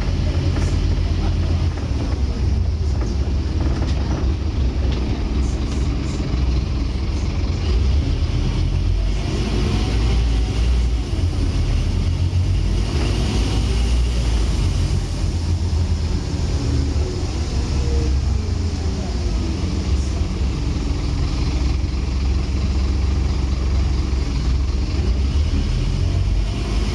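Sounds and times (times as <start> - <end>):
bus diesel engine droning: 0.0 - 26.9.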